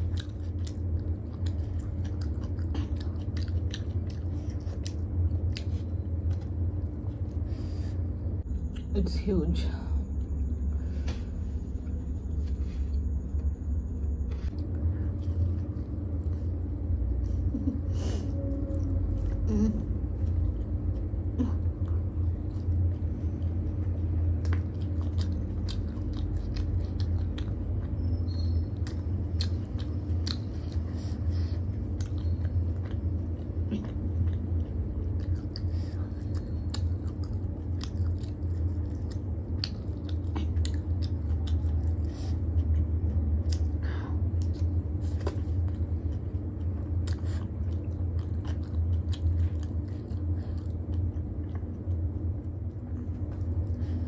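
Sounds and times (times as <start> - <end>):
chewing and biting noodles: 0.0 - 8.2, 20.2 - 54.0
steady low hum: 0.0 - 54.0.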